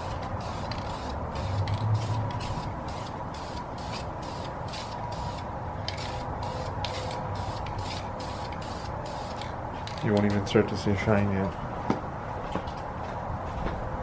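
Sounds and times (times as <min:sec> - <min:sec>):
aerosol can spraying: 0:00.0 - 0:09.5.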